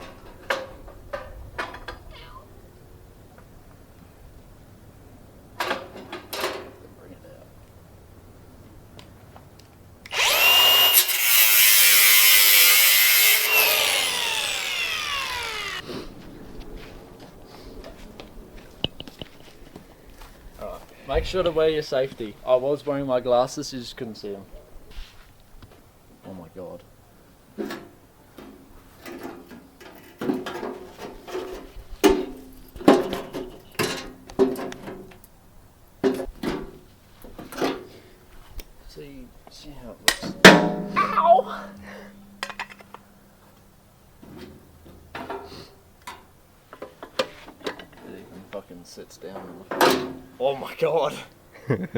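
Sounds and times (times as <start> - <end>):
angle grinder whining: 10.1 - 15.9.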